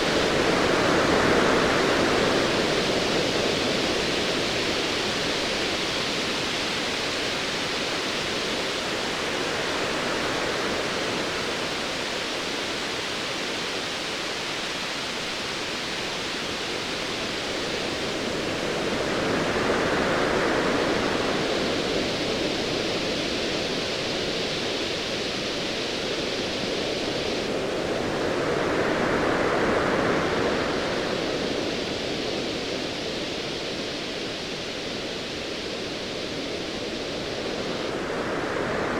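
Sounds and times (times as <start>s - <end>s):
hiss of surf: 15.9s - 38.9s.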